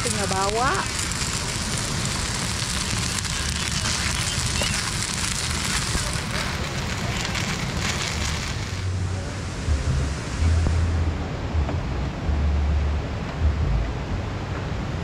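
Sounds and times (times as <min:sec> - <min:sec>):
noodles sizzling in a pot: 0:00.0 - 0:09.0.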